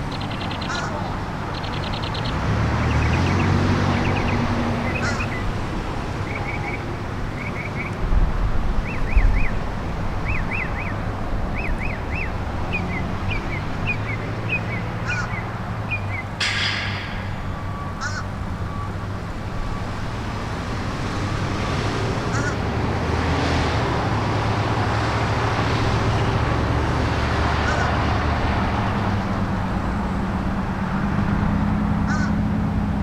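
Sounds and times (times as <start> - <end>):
songbird chirping: 0.0 - 8.0, 10.2 - 20.0
low buffeting: 15.7 - 21.2
diesel locomotive idling: 16.4 - 20.6.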